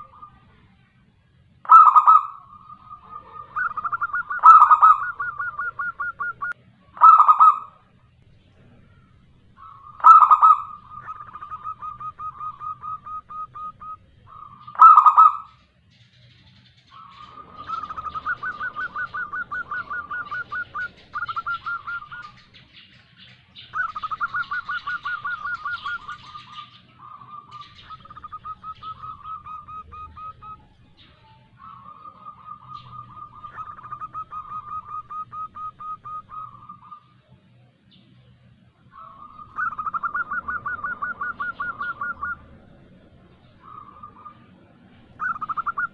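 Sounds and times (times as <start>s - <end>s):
dove trilling coos: 0.0s - 45.9s.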